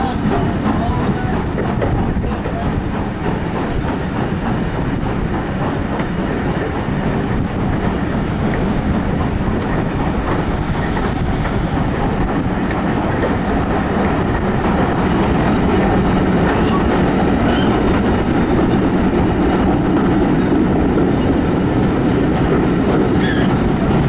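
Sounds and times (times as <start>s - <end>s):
rail joint clicks: 0.0s - 24.0s
train wheels rumbling: 0.0s - 24.0s.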